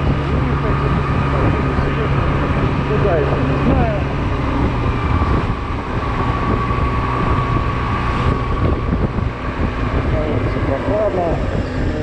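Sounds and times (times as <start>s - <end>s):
scooter engine running: 0.0s - 12.0s
wind noise on microphone: 0.0s - 12.0s.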